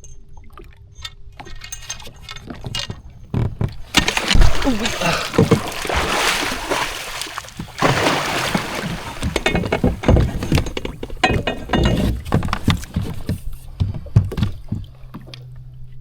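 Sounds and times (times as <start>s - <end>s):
low steady hum: 1.6s - 16.0s
sharp knocks and thumps: 2.5s - 14.9s
water splashing against jet ski: 3.8s - 11.2s.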